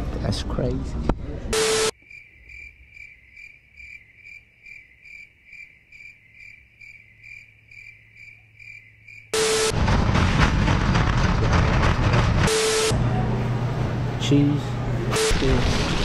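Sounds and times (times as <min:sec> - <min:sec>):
cricket chirping: 0:01.9 - 0:09.4.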